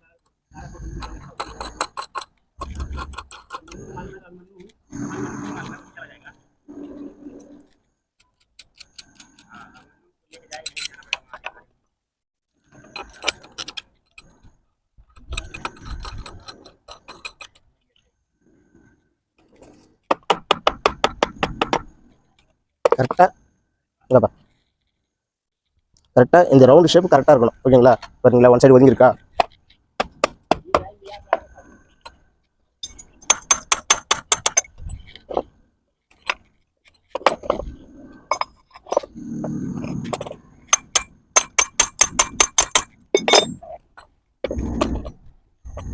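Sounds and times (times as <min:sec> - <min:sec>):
metal bolts clicking and rattling: 0:01.0 - 0:03.8, 0:10.4 - 0:11.5, 0:12.9 - 0:14.4, 0:15.1 - 0:17.6, 0:32.8 - 0:35.5, 0:36.1 - 0:37.7, 0:40.1 - 0:44.2
steel tools clinking: 0:01.0 - 0:03.8, 0:10.5 - 0:11.1, 0:15.2 - 0:17.6, 0:32.8 - 0:35.2, 0:40.7 - 0:44.1.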